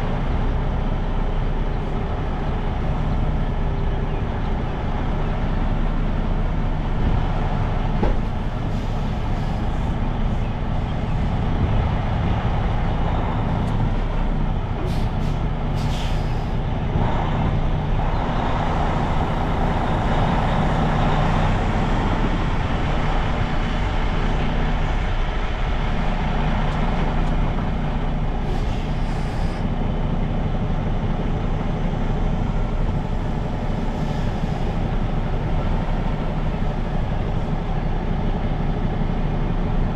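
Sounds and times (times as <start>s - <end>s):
diesel truck engine running: 0.0s - 39.9s
air brake hiss: 14.8s - 16.6s, 28.4s - 29.7s.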